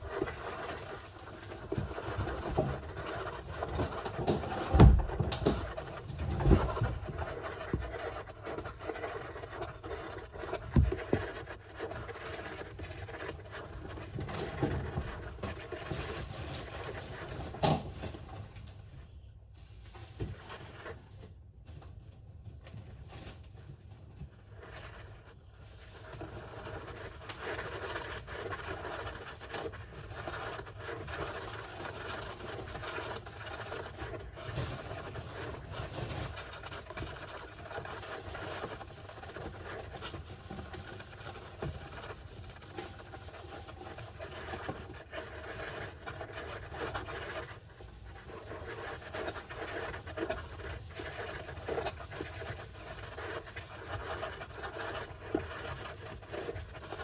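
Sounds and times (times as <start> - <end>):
hamster digging in sand: 0.0 - 18.5, 19.5 - 21.4, 24.2 - 57.0.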